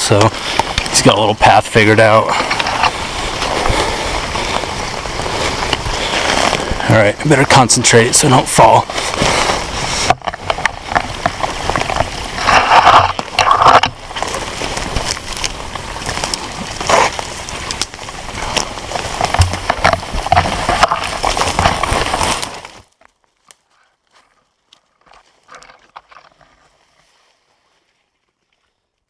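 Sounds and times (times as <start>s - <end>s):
footsteps crunching through undergrowth: 0.0s - 28.2s.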